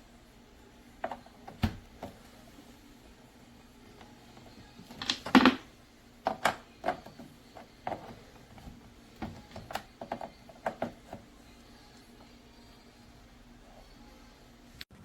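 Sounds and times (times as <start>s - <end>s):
clicks and knocks from handling: 6.2s - 11.3s.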